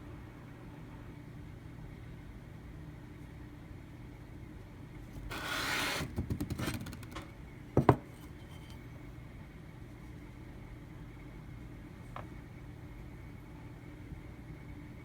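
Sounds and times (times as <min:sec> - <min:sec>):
short rub: 0:05.2 - 0:06.2.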